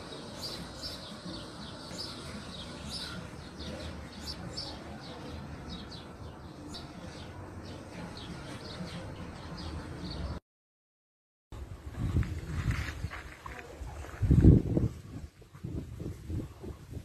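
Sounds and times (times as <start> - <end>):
birds chirping: 0.0 - 10.4.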